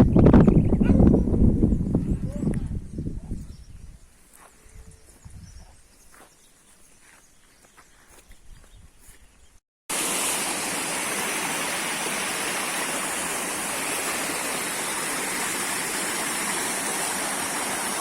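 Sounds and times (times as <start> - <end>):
waterfall pouring: 9.9 - 18.0.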